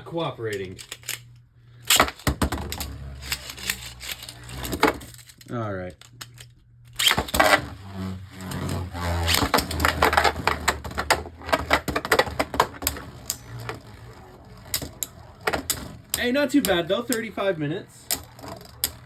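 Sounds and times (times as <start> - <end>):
sharp plastic clicks and knocks: 14.6 - 17.4, 18.1 - 19.0.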